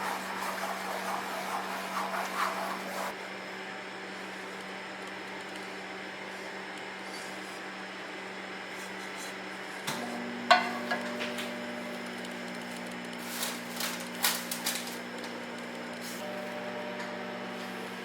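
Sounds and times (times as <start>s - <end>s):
electrical hum: 3.0s - 18.0s
kitchenware knocks and clinks: 10.5s - 11.4s.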